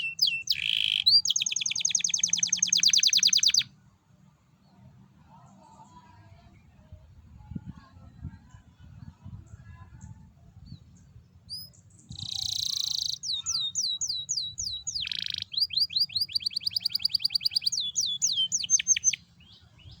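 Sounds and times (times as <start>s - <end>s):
canary singing: 0.0s - 3.7s, 11.5s - 20.0s.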